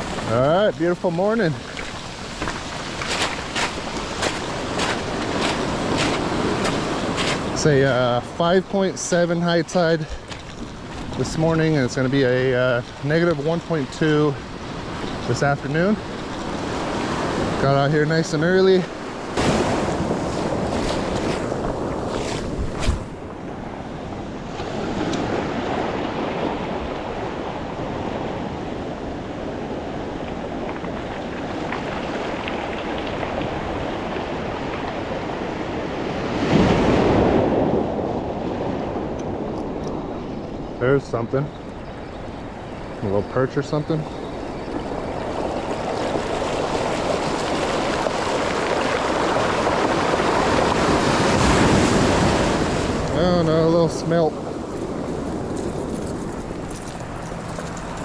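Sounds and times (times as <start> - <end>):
ocean surf on beach: 0.0 - 58.0
wind on microphone: 19.2 - 40.8, 41.5 - 58.0.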